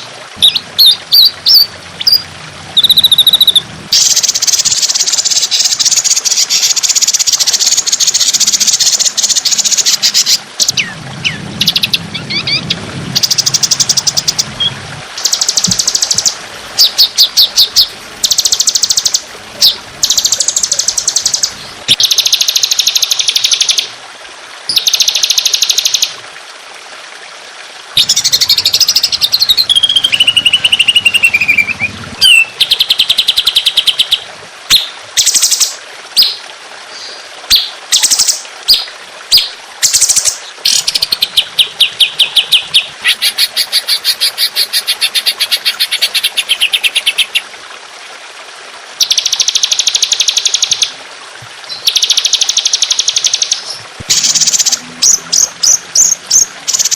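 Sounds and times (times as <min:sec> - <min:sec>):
songbird trills: 0:28.0 - 0:35.6.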